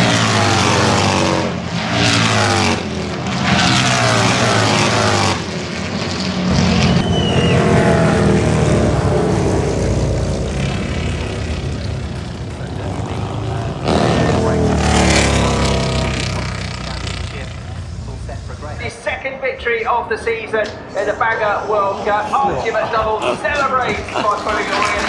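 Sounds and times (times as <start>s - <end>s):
low steady engine drone: 0.0s - 19.1s
motorcycle engines passing at full throttle: 0.0s - 19.1s, 21.4s - 25.0s.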